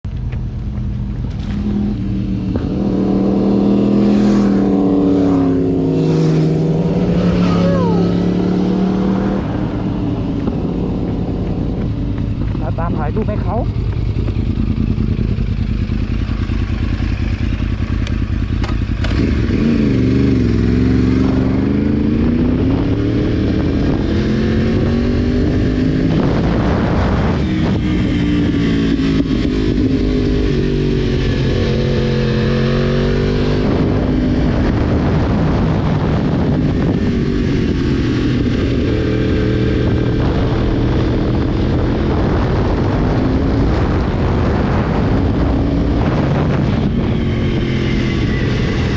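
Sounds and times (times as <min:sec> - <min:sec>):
motorcycle engine accelerating: 0:00.1 - 0:48.9.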